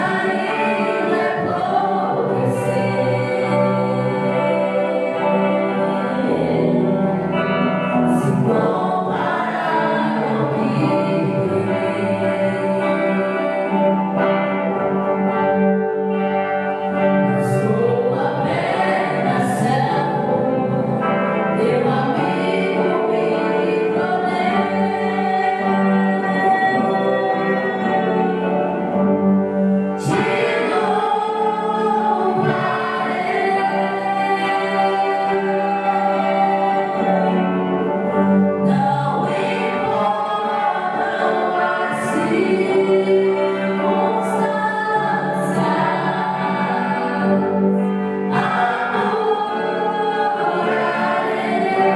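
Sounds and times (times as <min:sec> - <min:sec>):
group singing a hymn: 0:00.0 - 0:51.9.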